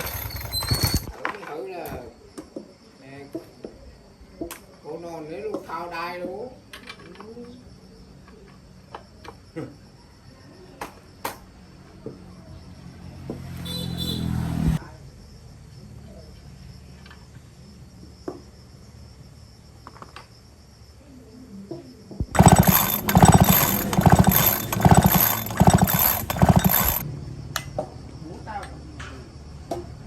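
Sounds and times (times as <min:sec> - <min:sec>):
chainsaw engine revving: 0:00.0 - 0:01.1, 0:22.3 - 0:27.0.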